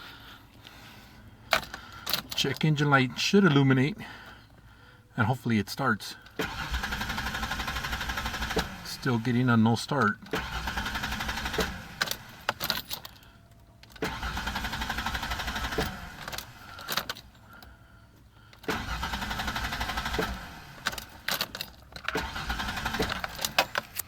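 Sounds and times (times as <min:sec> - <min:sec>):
car starter cranking engine: 0:01.4 - 0:02.8, 0:06.2 - 0:24.0.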